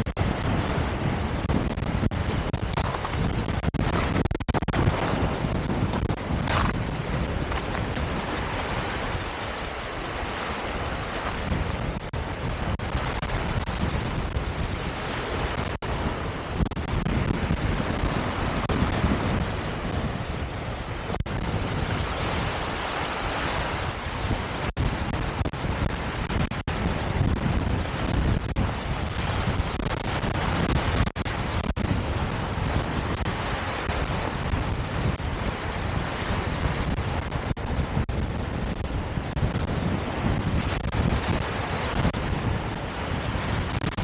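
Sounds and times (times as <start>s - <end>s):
wind buffeting microphone: 0.0s - 44.0s.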